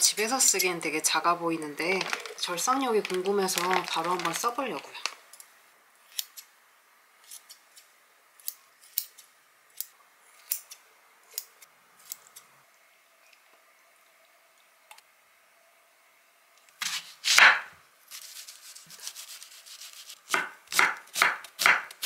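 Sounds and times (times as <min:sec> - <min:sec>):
kitchen shears snipping meat: 0:16.8 - 0:22.0.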